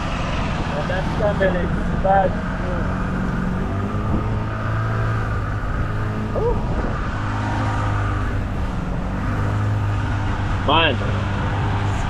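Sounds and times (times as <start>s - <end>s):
boat motor running: 0.0s - 12.0s
person whooping: 6.4s - 6.7s.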